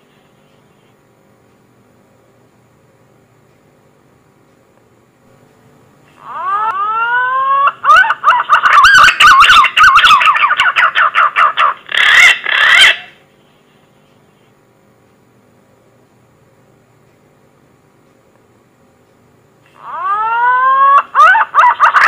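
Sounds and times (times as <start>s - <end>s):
green pigeon whistling call: 6.2s - 11.3s.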